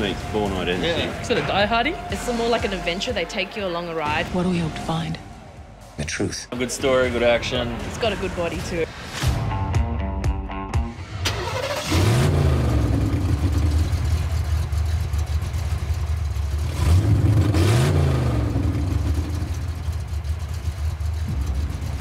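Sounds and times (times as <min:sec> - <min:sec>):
car engine revving: 0:10.8 - 0:22.0.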